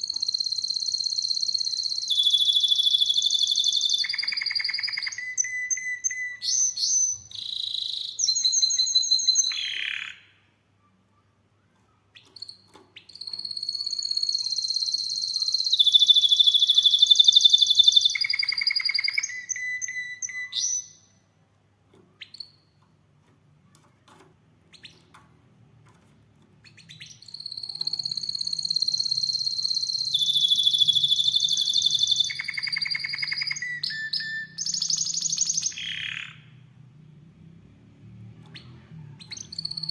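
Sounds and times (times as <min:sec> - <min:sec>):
canary singing high trills: 0:00.0 - 0:10.4, 0:12.1 - 0:21.2, 0:26.6 - 0:36.6, 0:38.5 - 0:39.9
faint chirps: 0:00.0 - 0:21.5, 0:26.6 - 0:36.6, 0:38.3 - 0:39.9.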